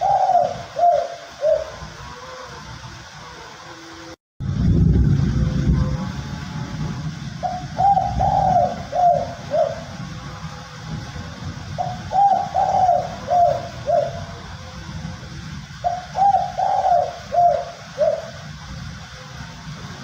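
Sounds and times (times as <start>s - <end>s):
dove cooing: 0.0s - 4.1s, 7.4s - 9.9s, 11.8s - 14.5s, 15.8s - 18.6s.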